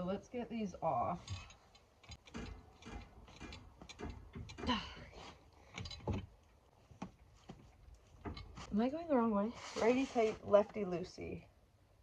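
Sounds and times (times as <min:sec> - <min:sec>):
metal clinks: 0:01.2 - 0:05.0.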